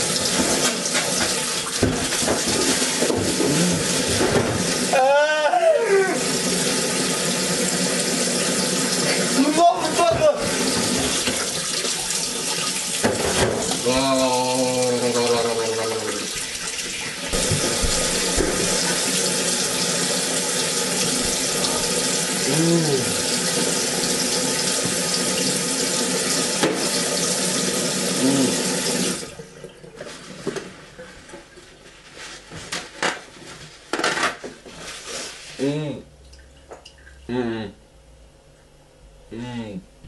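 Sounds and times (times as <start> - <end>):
water tap running into sink: 0.0 - 5.0, 6.0 - 30.6.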